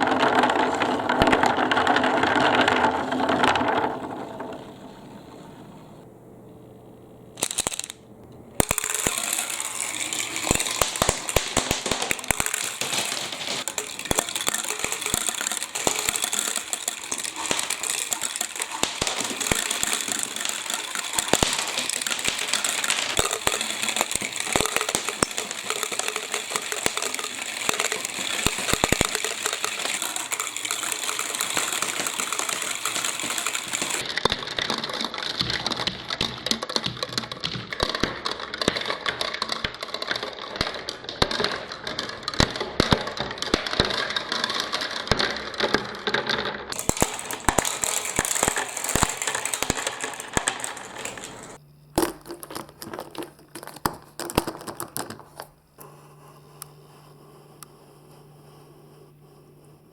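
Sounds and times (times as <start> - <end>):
marbles clicking and clattering: 0.0 - 5.5, 7.4 - 8.0, 8.6 - 55.6
water rushing down marble run: 8.7 - 35.4, 46.7 - 51.6.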